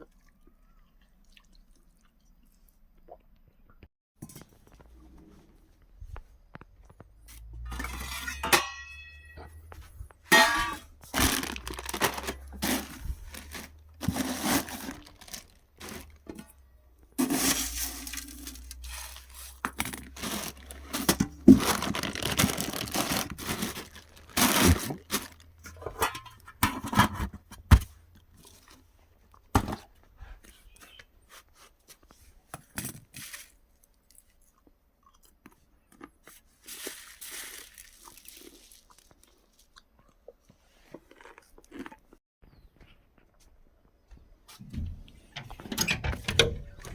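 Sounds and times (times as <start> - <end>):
crunchy food being chewed: 0.0 - 3.6, 32.7 - 43.5.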